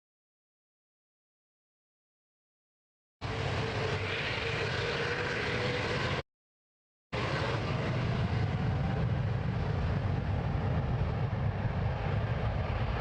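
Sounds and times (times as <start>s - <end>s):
faint engine whine: 3.2s - 6.2s, 7.2s - 13.0s
jet engines roaring: 3.2s - 6.2s, 7.2s - 13.0s.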